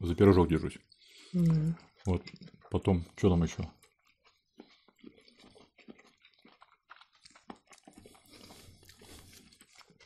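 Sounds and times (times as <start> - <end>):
people chewing: 0.0 - 10.0
small mouth clicks and crackles: 3.6 - 10.0.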